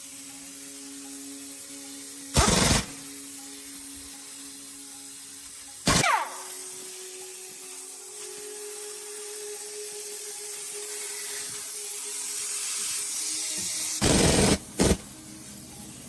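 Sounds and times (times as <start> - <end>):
power tool bursts: 2.3 - 3.2, 5.8 - 7.1, 13.0 - 15.1.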